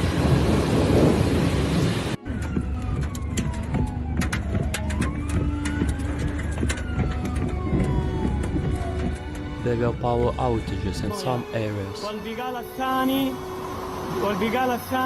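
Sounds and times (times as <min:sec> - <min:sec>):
heavy rain: 0:00.0 - 0:02.2, 0:13.3 - 0:15.0
thunder: 0:00.0 - 0:09.3
siren wailing: 0:02.1 - 0:15.0.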